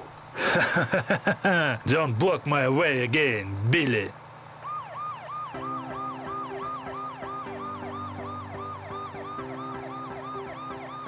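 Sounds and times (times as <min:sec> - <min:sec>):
police siren yelping: 0:04.6 - 0:11.0.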